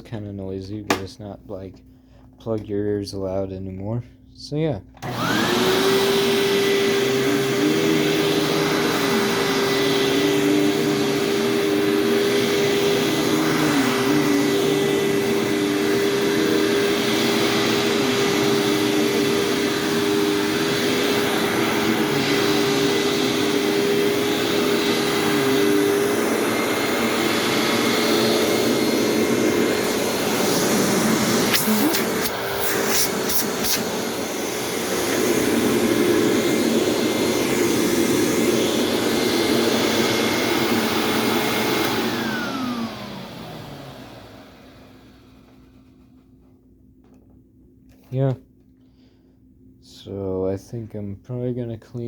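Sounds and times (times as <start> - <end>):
upright vacuum cleaner running: 5.0 - 46.3.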